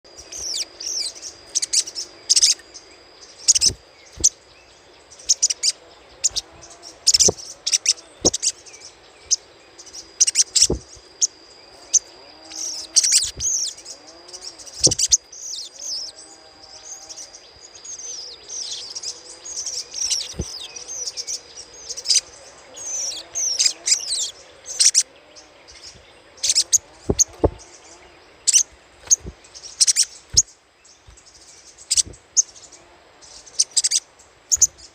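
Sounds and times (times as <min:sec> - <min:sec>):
bird chattering calls: 0:03.4 - 0:04.4, 0:05.3 - 0:08.7, 0:10.2 - 0:11.3, 0:11.9 - 0:16.1, 0:21.9 - 0:25.1, 0:28.5 - 0:30.5, 0:31.8 - 0:32.2.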